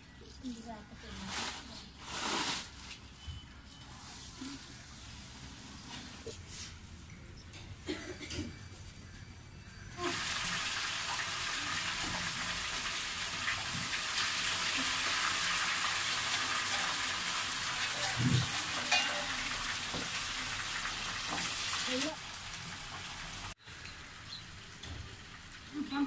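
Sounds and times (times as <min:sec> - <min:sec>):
oil sizzling in a wok: 0:10.0 - 0:26.0.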